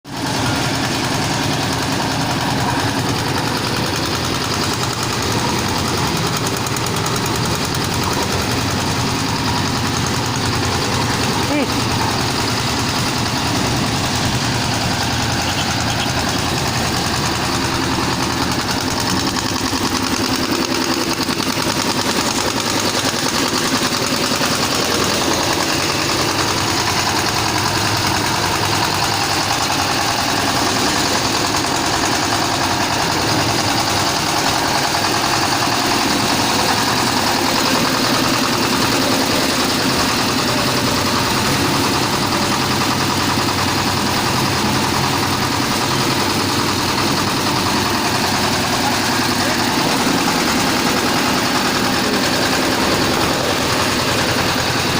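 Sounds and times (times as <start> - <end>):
concrete mixer engine drone: 0.0 - 54.9.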